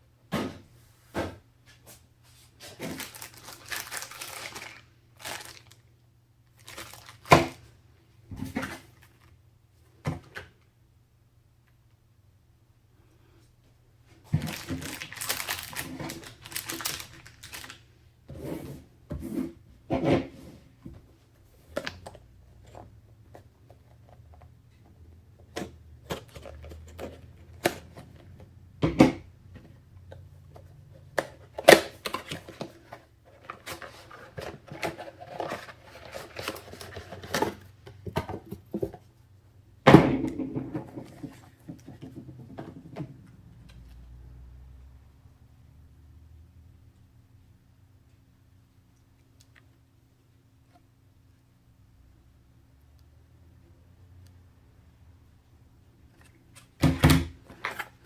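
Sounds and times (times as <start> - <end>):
packaging rustling: 2.6 - 5.8, 6.5 - 7.6, 14.3 - 17.8, 31.5 - 38.8.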